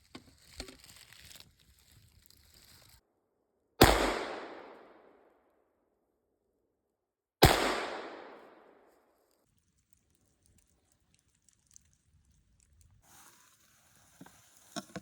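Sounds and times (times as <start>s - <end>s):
loud sharp bangs with echo: 3.8s - 4.8s, 7.4s - 8.5s.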